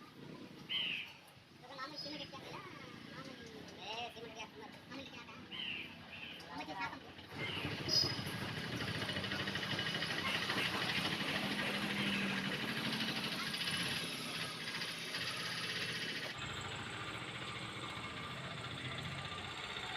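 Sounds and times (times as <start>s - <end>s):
machine engine running with hiss: 7.3s - 19.9s.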